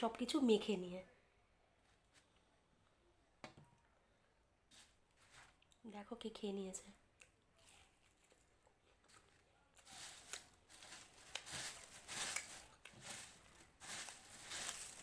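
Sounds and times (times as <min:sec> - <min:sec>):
hands mixing puffed rice: 0:07.6 - 0:15.0.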